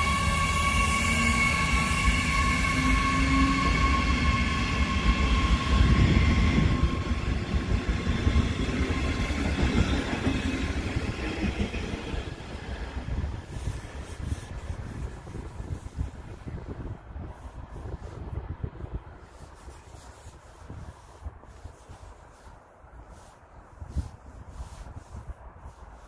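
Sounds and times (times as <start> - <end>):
train wheels rumbling on rails: 0.0 - 22.4.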